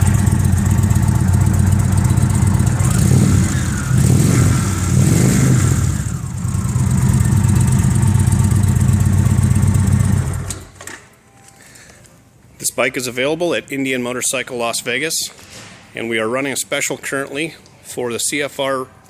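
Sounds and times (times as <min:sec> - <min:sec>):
motorcycle engine revving and idling: 0:00.0 - 0:10.6.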